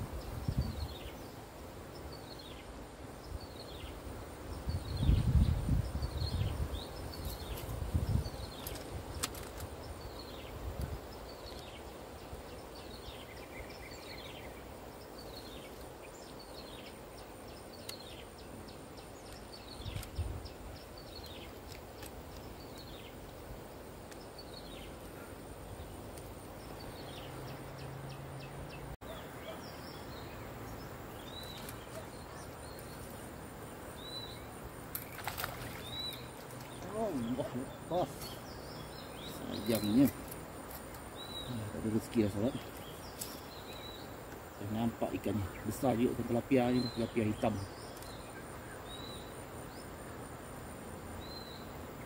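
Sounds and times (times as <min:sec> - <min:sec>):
outdoor hiss: 0:00.0 - 0:52.0
bird chirps: 0:24.1 - 0:50.0.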